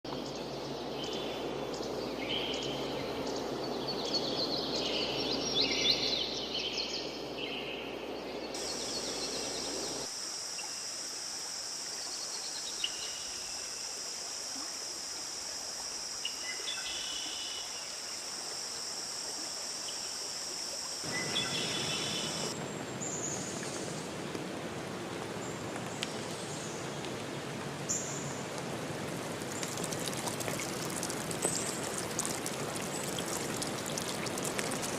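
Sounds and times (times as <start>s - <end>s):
forest stream running: 0.1s - 34.9s
high-pitched insect drone: 8.6s - 22.6s
birds calling: 21.1s - 22.5s.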